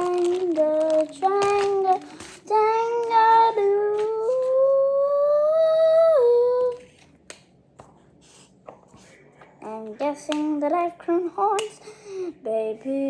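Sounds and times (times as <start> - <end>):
faint paper handling clicks: 0.0 - 4.7
girl singing wordless tune: 0.0 - 7.0, 9.6 - 13.0.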